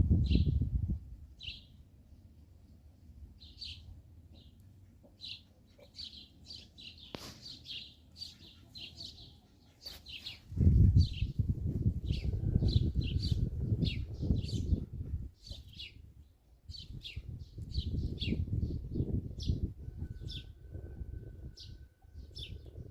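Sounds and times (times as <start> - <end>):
small birds chirping: 1.4 - 2.7, 3.4 - 11.5, 12.1 - 20.5.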